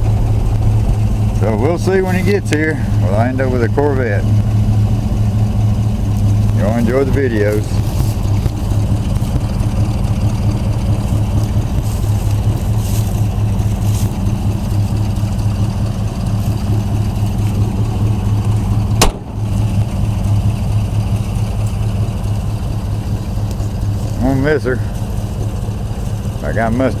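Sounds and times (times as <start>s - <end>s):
truck engine idling: 0.0s - 27.0s
sharp click: 19.0s - 19.4s.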